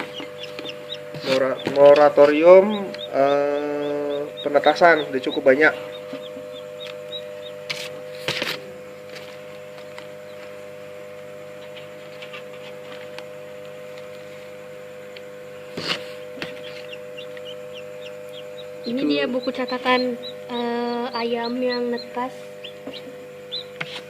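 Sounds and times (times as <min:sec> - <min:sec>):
chicks peeping: 0:00.0 - 0:08.4, 0:09.8 - 0:10.7, 0:11.6 - 0:12.9, 0:16.2 - 0:24.0
incubator electrical hum: 0:00.0 - 0:24.0.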